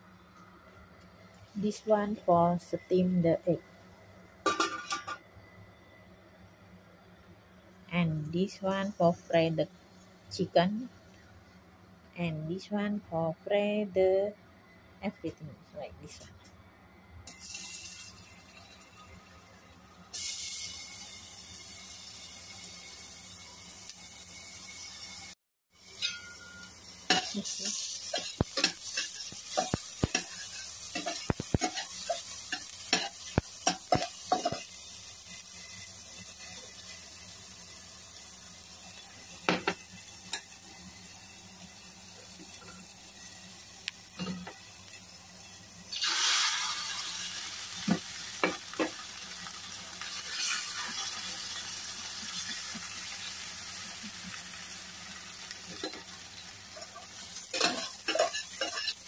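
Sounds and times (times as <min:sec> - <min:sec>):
aromatics sizzling in hot oil: 0:17.3 - 0:59.0
metal spatula scraping pot: 0:57.5 - 0:59.0.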